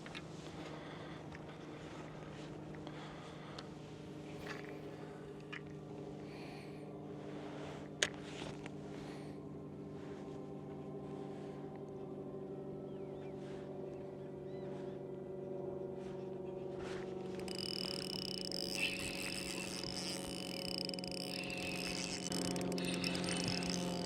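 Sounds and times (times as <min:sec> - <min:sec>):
boat motor humming: 0:17.4 - 0:24.0
high steady tone: 0:17.5 - 0:24.0.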